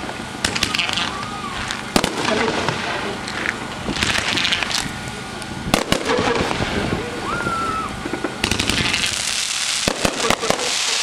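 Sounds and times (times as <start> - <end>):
crackling hiss: 0.0 - 11.0
fireworks bangs: 0.0 - 11.0
short whistling tone: 7.2 - 7.9.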